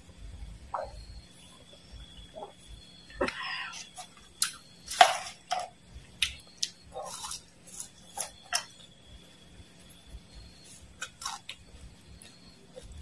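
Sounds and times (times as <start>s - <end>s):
crunchy chewing: 0.8s - 13.0s.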